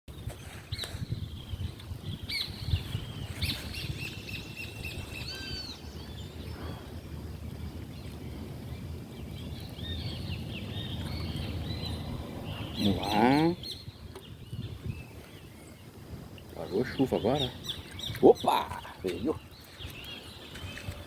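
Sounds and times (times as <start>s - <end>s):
birds chirping and whistling: 0.4s - 7.0s, 9.2s - 15.9s, 16.6s - 21.0s
steady low rumble: 5.9s - 15.1s.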